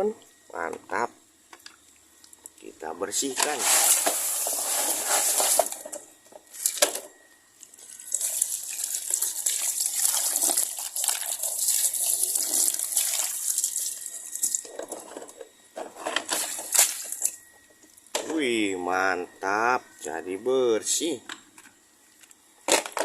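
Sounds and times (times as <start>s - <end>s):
water running and splashing: 7.8s - 14.6s.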